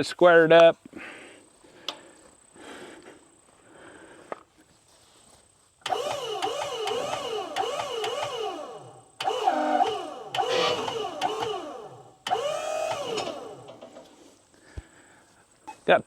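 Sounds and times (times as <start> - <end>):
sawmill machinery running: 5.9 - 14.2.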